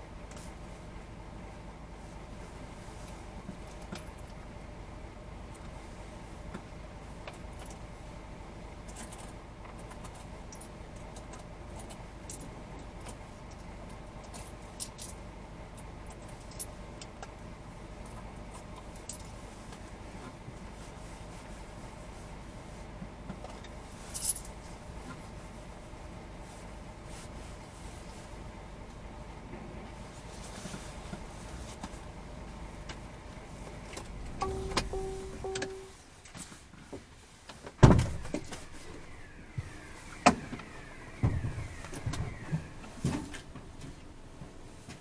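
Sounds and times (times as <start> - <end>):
light metallic clicks and rattles: 8.8 - 17.4
steady low rumble: 28.6 - 36.3, 37.8 - 45.0.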